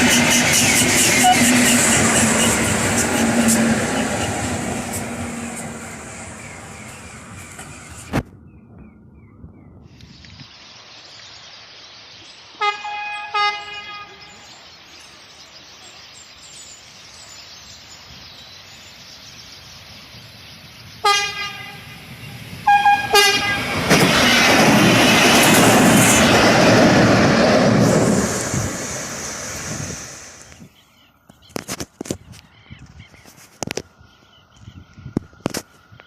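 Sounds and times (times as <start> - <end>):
train horn: 0.0 - 4.5, 12.6 - 14.4, 21.0 - 21.9, 22.6 - 23.8
train passing: 0.0 - 8.2, 19.0 - 30.7.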